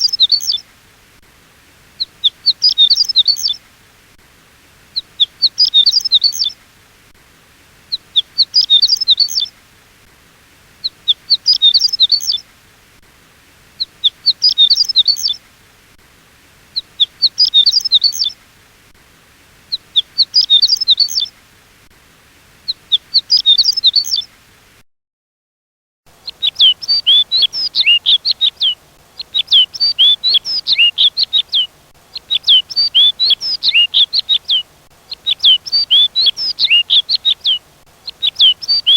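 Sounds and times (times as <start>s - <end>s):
bird chirping: 0.0s - 0.6s, 2.0s - 3.6s, 4.9s - 6.6s, 7.9s - 9.5s, 10.8s - 12.4s, 13.8s - 15.4s, 16.7s - 18.4s, 19.7s - 21.3s, 22.6s - 24.3s, 26.2s - 38.9s
songbird song phrases: 0.0s - 0.7s, 1.8s - 3.8s, 4.8s - 6.7s, 7.7s - 9.7s, 10.7s - 12.5s, 13.6s - 15.5s, 16.5s - 18.5s, 19.6s - 21.4s, 22.6s - 24.4s, 26.1s - 38.9s.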